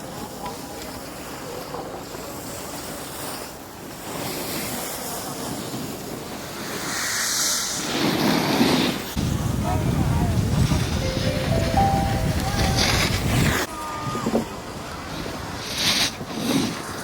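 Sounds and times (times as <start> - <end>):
skis scraping on snow: 0.1 - 9.2, 12.3 - 13.7, 15.1 - 17.0
wind over microphone: 8.8 - 17.0.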